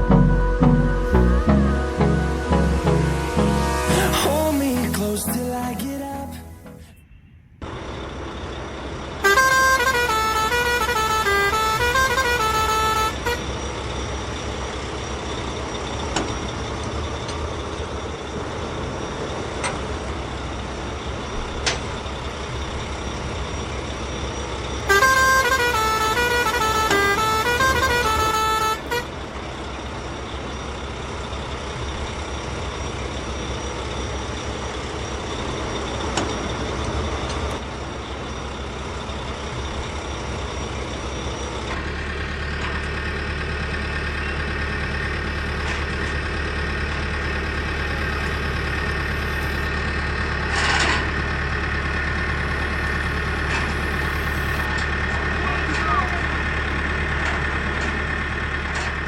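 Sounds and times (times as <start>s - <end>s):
truck musical horn tune: 0.0s - 4.7s, 9.2s - 13.8s, 24.8s - 29.4s, 52.3s - 54.7s
truck engine idling: 0.0s - 6.8s, 7.6s - 59.0s.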